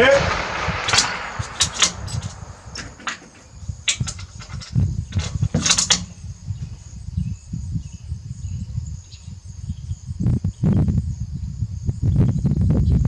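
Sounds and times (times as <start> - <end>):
steady low rumble: 0.0 - 6.7.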